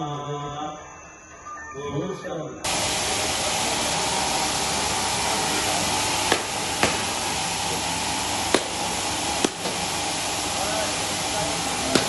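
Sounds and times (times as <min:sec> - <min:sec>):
sawmill machinery running: 0:02.7 - 0:12.0
sharp knocks: 0:06.3 - 0:07.1, 0:08.5 - 0:08.8.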